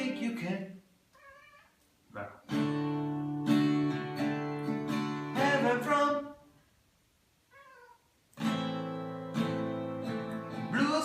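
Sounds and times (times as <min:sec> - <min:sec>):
cat meowing: 0:01.1 - 0:01.8, 0:07.5 - 0:08.1
acoustic guitar strumming: 0:02.4 - 0:06.4, 0:08.4 - 0:11.0.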